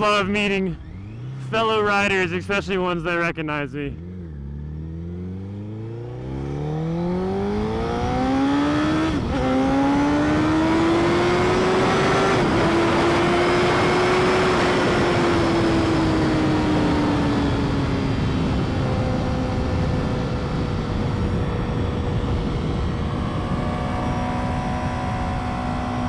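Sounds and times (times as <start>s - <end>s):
motorcycle engine accelerating: 0.0s - 26.0s
wind noise on microphone: 7.2s - 26.0s.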